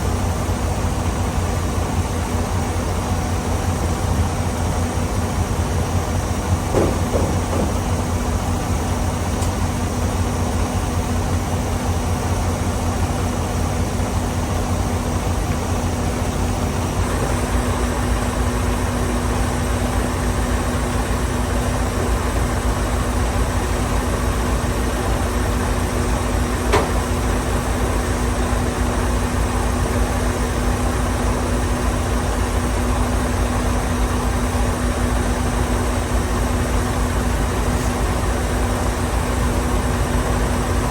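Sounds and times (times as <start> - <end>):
truck diesel engine running: 0.0 - 40.9.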